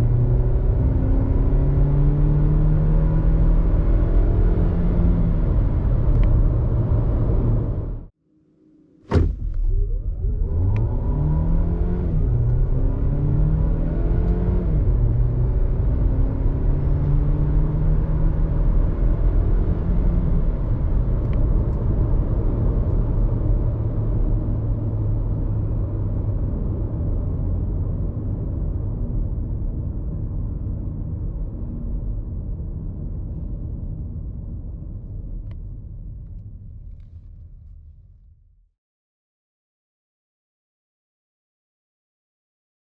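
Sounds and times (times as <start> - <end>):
road rumble: 0.0 - 8.1, 9.1 - 38.1
car engine accelerating: 9.1 - 29.0.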